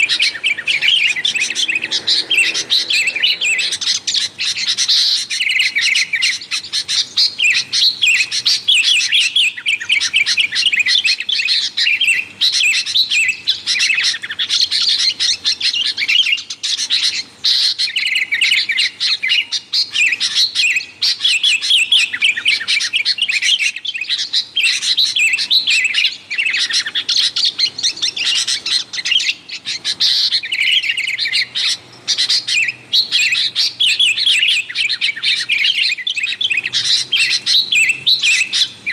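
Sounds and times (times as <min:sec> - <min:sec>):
bulbuls chirping: 0:00.0 - 0:38.9.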